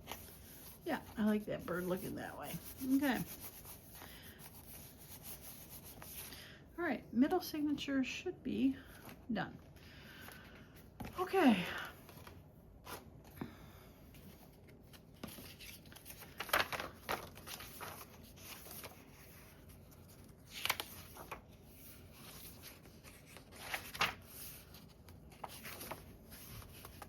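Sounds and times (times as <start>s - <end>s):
paper rustling and crinkling: 0.0s - 6.3s, 14.2s - 27.0s.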